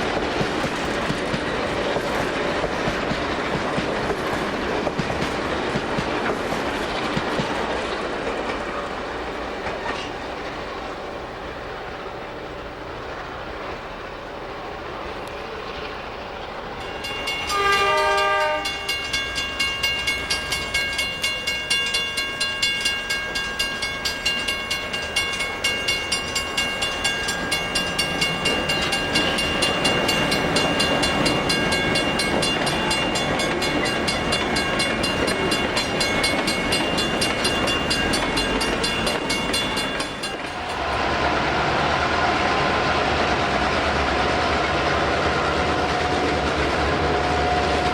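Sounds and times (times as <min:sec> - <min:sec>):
train wheels clicking over rail joints: 0:00.0 - 0:11.7, 0:14.9 - 0:41.5
locomotive horn blast: 0:17.4 - 0:19.0.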